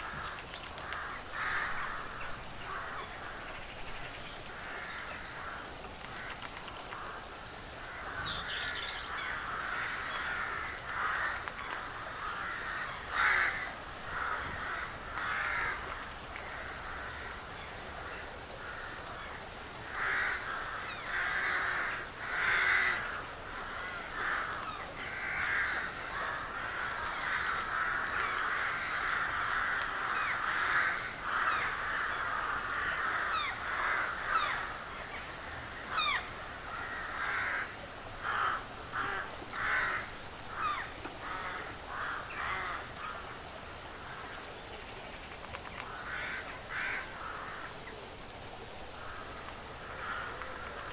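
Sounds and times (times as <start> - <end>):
small birds chirping: 0.0 - 4.5
crows cawing: 0.8 - 3.4, 9.2 - 17.3, 19.9 - 34.9, 35.7 - 43.0, 45.9 - 47.8, 49.0 - 50.9.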